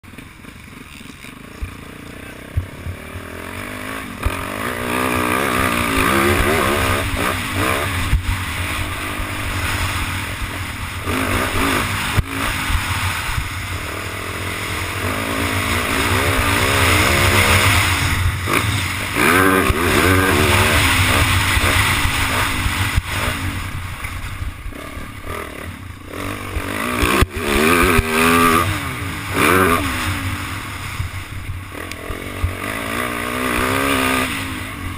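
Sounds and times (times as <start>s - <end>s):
motocross bike engine revving: 0.0s - 34.9s.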